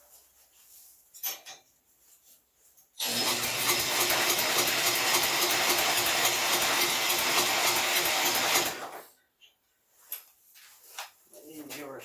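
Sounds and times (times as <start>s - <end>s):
engine cranking without starting: 3.0s - 9.0s.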